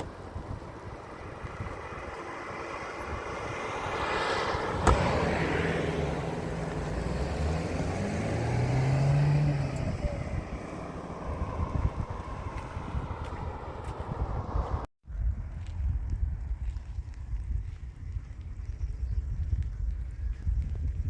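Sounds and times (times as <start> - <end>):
motor vehicle passing: 0.0 - 14.9.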